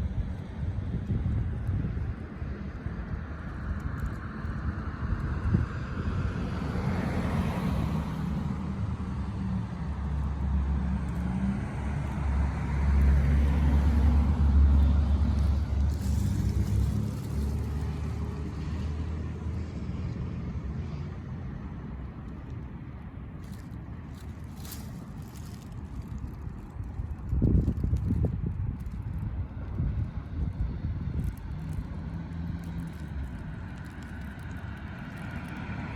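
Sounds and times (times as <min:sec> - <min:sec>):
cars passing: 0:00.0 - 0:35.9
engine hum: 0:00.0 - 0:35.9
low traffic rumble: 0:00.0 - 0:35.9.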